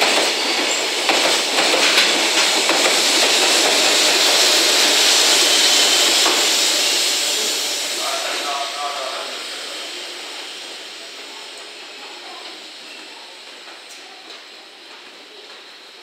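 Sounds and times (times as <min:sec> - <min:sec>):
train wagons clacking over rail joints: 0:00.0 - 0:04.2
electric locomotive rushing past: 0:00.0 - 0:14.9.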